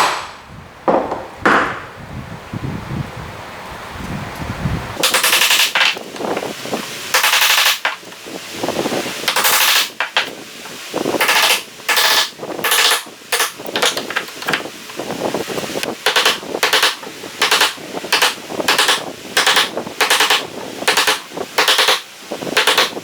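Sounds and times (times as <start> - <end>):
hand tool shaving wood: 5.0 - 23.0.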